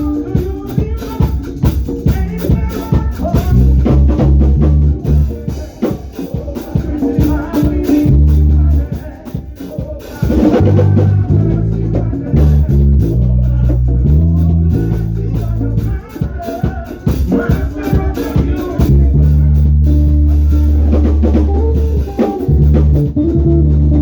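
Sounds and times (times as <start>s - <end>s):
drum kit beat: 0.0s - 24.0s
bass line of low notes: 3.4s - 5.5s, 8.0s - 8.9s, 10.5s - 16.0s, 18.7s - 24.0s.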